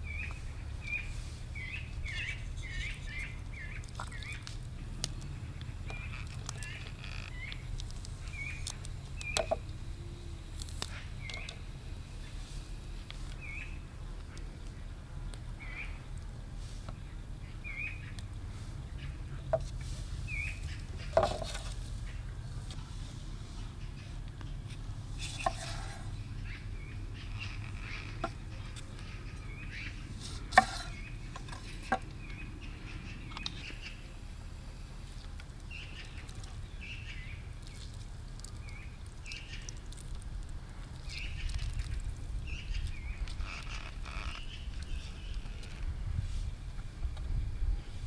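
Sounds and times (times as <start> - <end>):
small birds chirping: 0.0 - 16.2, 16.8 - 22.9, 23.5 - 46.6
low wind rumble: 40.2 - 48.0.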